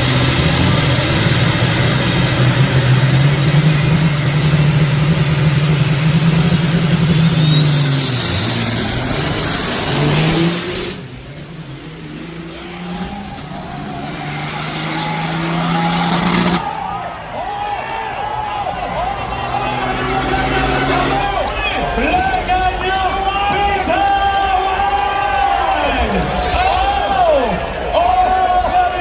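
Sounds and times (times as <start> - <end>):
high whistle rising in pitch: 0.0 - 11.3
truck engine revving: 0.0 - 29.0.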